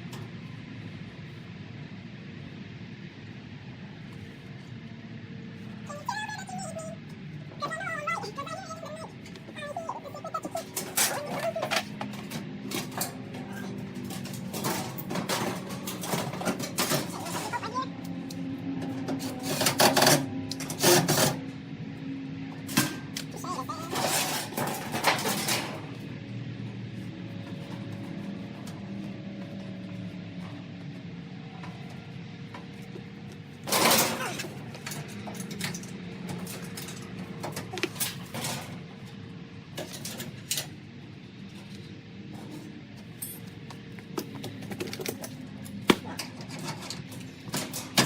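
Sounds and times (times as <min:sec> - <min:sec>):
steady low hum: 0:00.0 - 0:48.0
tools and parts clinking: 0:10.5 - 0:17.7, 0:18.9 - 0:21.4, 0:22.6 - 0:26.0, 0:33.6 - 0:38.8, 0:39.8 - 0:40.8, 0:42.4 - 0:48.0
clatter and knocks: 0:13.9 - 0:17.6, 0:24.0 - 0:25.8.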